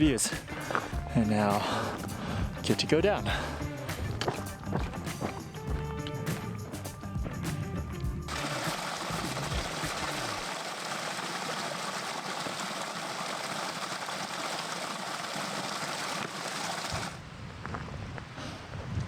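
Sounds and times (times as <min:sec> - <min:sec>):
water rushing: 0:08.3 - 0:17.2.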